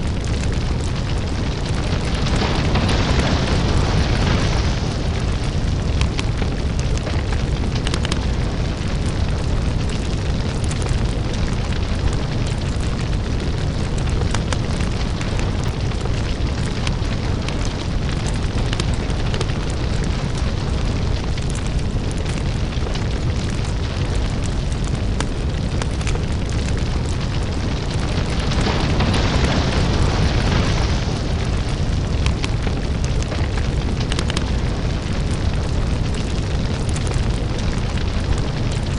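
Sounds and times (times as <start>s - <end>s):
crackles and pops: 0.0s - 38.9s
deep rumble: 0.0s - 38.9s.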